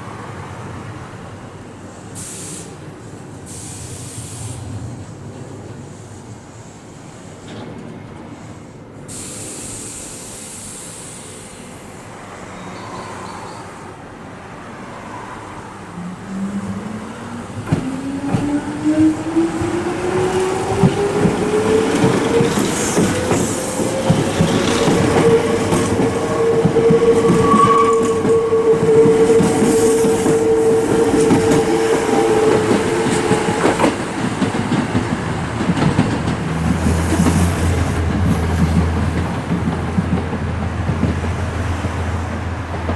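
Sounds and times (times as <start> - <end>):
rail joints clicking: 17.6 - 42.9.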